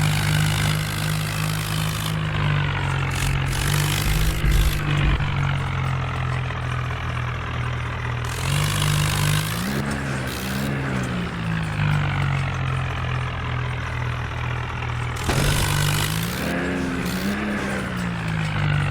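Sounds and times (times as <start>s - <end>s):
tractor engine running: 0.0s - 18.9s.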